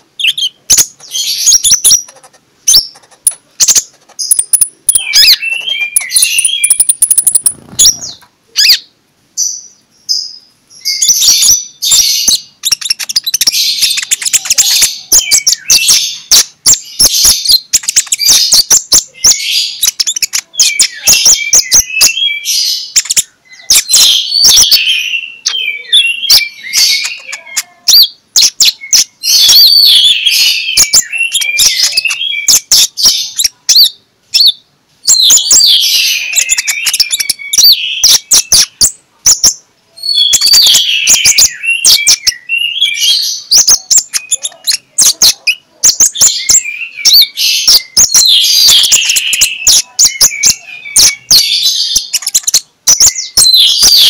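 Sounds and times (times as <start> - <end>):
bird chirping and trilling: 0.0 - 54.0
sharp clicking bird notes: 1.8 - 8.3.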